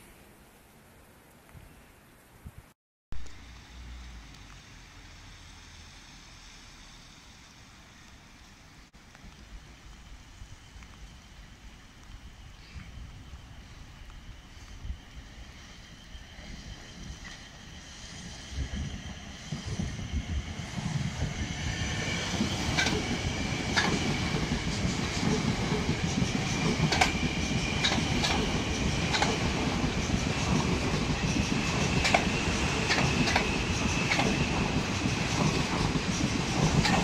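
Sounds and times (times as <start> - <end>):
steady high whine: 3.2 - 37.0
train passing: 3.4 - 37.0
wheels clacking over rail joints: 22.2 - 37.0.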